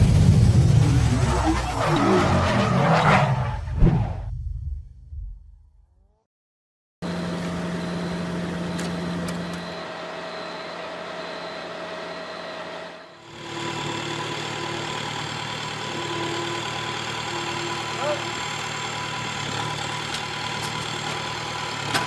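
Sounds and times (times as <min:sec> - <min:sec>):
heavy machinery engines running: 0:07.0 - 0:22.0.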